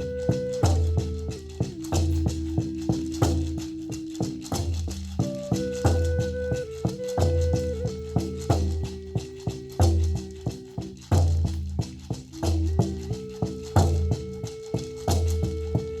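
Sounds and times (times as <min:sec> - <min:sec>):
flute playing long notes: 0:00.0 - 0:11.2, 0:12.3 - 0:16.0
maraca rattling: 0:00.0 - 0:16.0.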